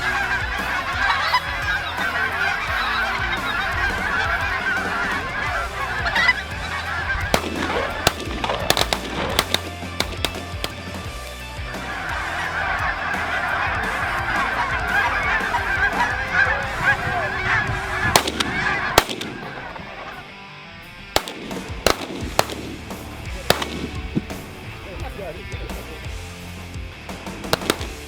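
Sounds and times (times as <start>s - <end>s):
shotgun shots: 0.0s - 11.1s, 17.7s - 20.0s, 21.1s - 25.9s, 27.5s - 28.0s
geese honking: 0.0s - 26.6s, 27.2s - 28.0s.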